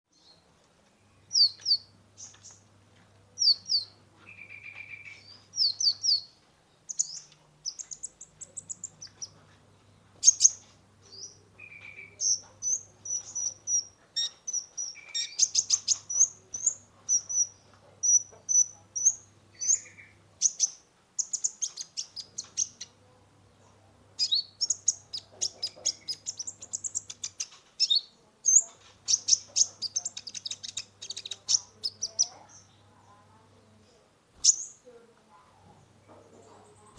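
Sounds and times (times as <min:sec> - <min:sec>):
bird chirping and trilling: 0:01.2 - 0:02.6, 0:03.4 - 0:06.3, 0:06.9 - 0:09.4, 0:10.2 - 0:23.0, 0:24.2 - 0:32.8, 0:34.4 - 0:34.8.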